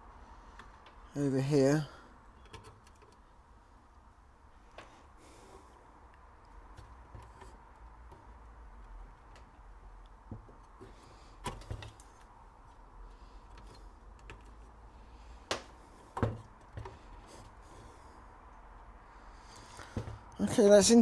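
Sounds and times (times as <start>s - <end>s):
faint steady background tone: 0.0s - 21.0s
light clicks and knocks: 15.4s - 18.0s.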